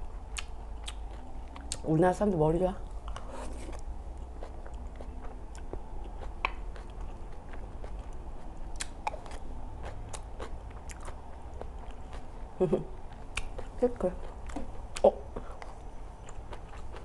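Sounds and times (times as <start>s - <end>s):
close chewing with wet mouth sounds: 0.0s - 17.0s.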